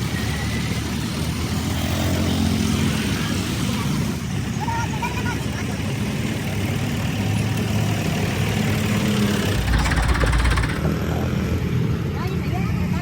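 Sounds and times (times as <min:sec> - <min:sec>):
tractor engine running: 0:05.9 - 0:11.1
rattling burst of rapid clicks: 0:09.3 - 0:11.0.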